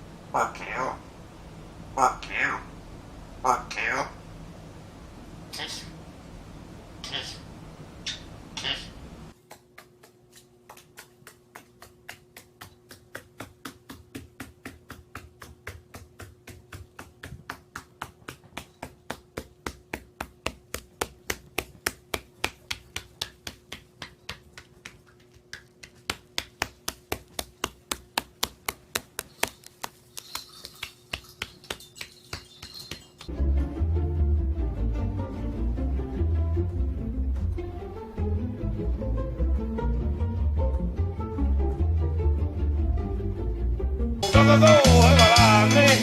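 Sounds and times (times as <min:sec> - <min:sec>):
faint steady hum: 0:00.0 - 0:45.4
sharp taps: 0:09.5 - 0:33.3.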